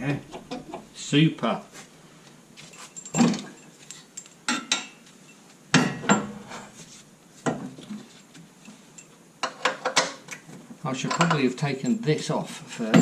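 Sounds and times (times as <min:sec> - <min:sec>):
metal tools clanking: 0:02.6 - 0:06.6.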